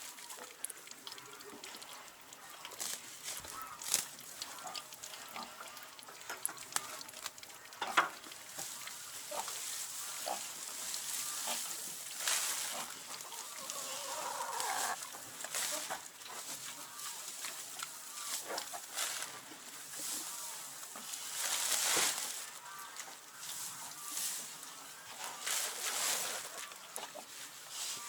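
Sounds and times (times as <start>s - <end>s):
rustling of straw: 2.8s - 4.8s, 8.5s - 28.0s.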